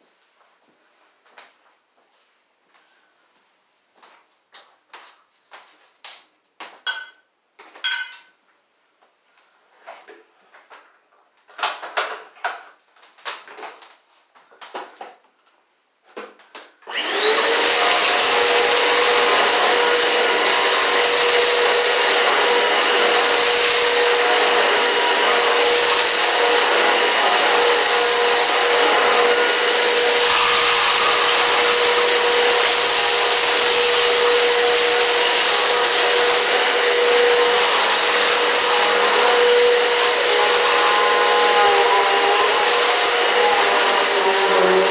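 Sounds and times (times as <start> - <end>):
vacuum cleaner running: 16.9 - 44.9.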